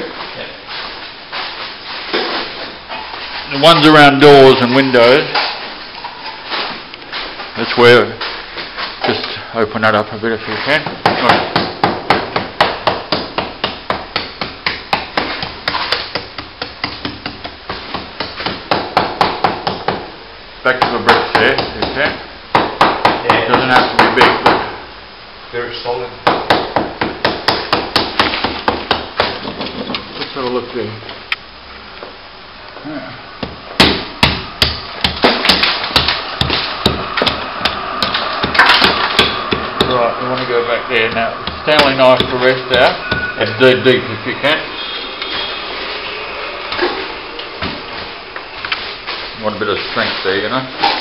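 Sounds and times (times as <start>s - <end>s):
hammer striking plaster: 10.8s - 20.1s, 33.4s - 40.0s.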